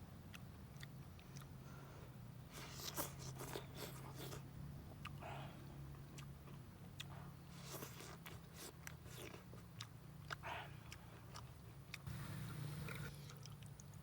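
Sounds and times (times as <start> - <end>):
person biting and chewing food: 2.5 - 4.4, 6.2 - 12.0.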